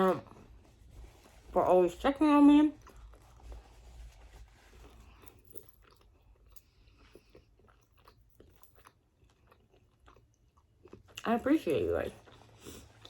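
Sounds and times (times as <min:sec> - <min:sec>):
chewing with mouth clicks: 0:02.7 - 0:03.7, 0:04.7 - 0:13.0.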